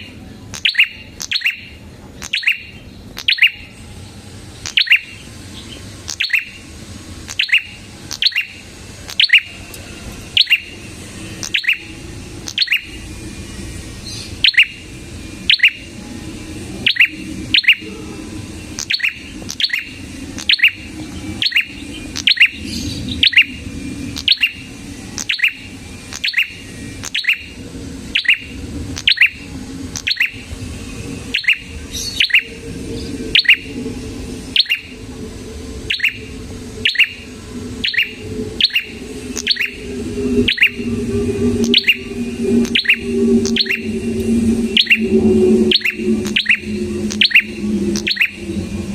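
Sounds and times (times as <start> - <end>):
bird chirping: 0.0 - 3.8, 4.6 - 6.7, 7.3 - 9.6, 10.3 - 13.3, 13.9 - 48.9
steady low hum: 0.0 - 48.9.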